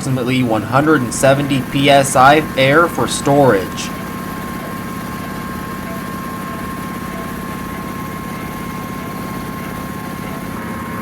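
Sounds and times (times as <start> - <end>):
electric air compressor running: 0.0 - 11.0.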